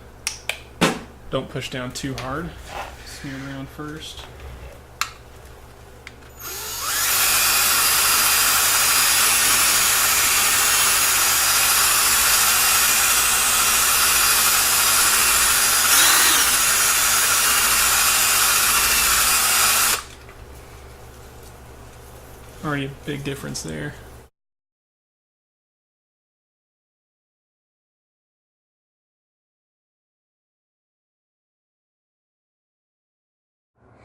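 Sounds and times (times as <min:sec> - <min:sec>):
drill spinning buffing wheel: 0:06.3 - 0:20.1.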